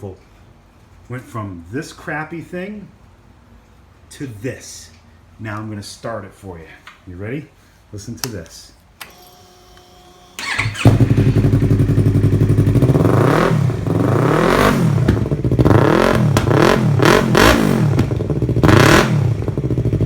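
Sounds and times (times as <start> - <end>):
motorcycle engine revving: 10.4 - 20.0.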